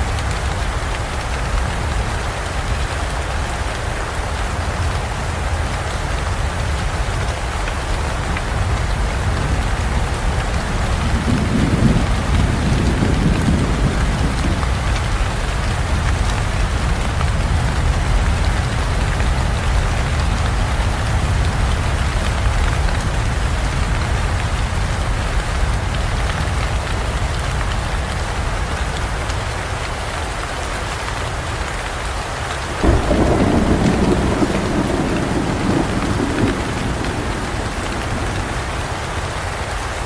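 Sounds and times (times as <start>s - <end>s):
heavy rain on foliage: 0.0s - 40.0s
thunder rumbling: 8.2s - 23.6s, 32.8s - 39.6s.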